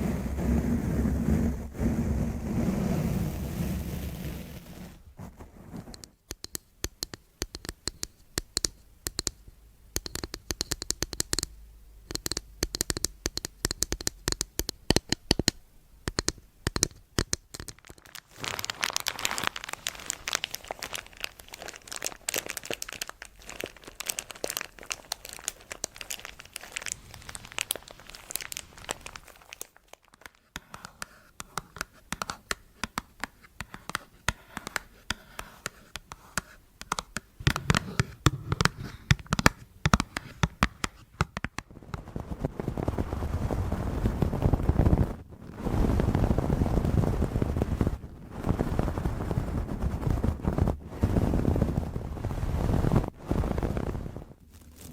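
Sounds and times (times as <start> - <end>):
close crinkling and crackling: 16.2 - 54.9.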